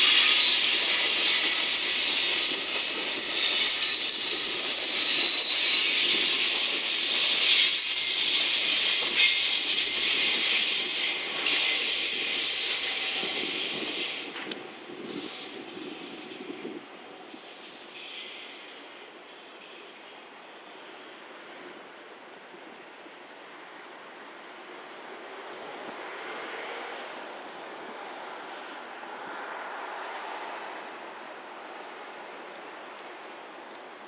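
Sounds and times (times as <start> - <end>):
freight train wheels rushing: 0.0 - 21.9.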